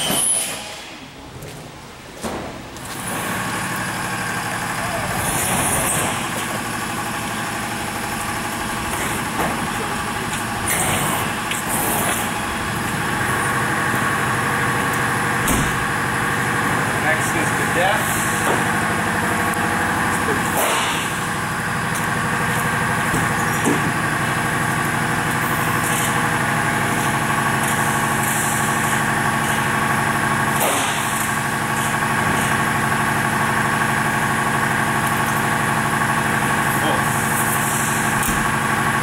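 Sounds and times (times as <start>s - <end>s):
diesel truck engine idling: 2.8s - 39.0s.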